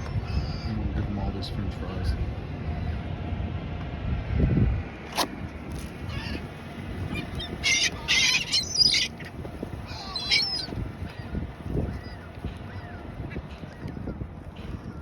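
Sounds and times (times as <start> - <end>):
seagulls squawking: 0.0 - 0.9, 6.0 - 15.0.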